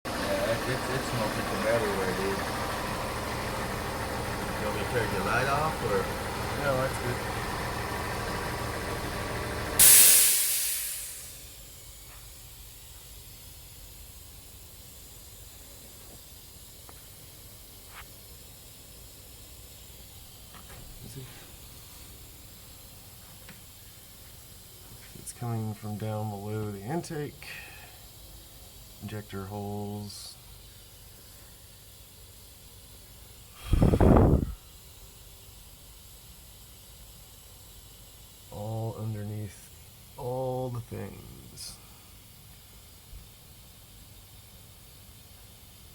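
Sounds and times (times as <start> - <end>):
steady running hum: 0.1 - 9.8, 10.8 - 45.9
loud burst of hiss: 9.6 - 24.9, 30.1 - 45.9
faint steady hiss: 9.8 - 45.9.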